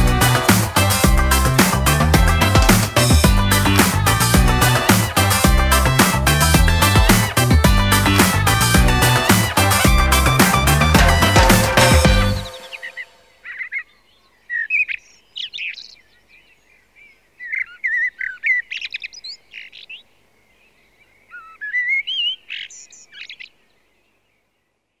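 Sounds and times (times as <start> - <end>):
songbird chirping: 10.2 - 25.0.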